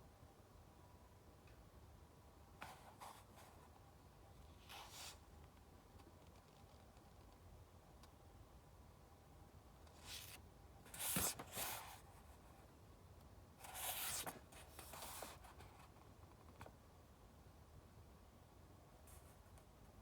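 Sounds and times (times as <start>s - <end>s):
book pages rustling: 10.0s - 12.0s, 13.6s - 16.7s.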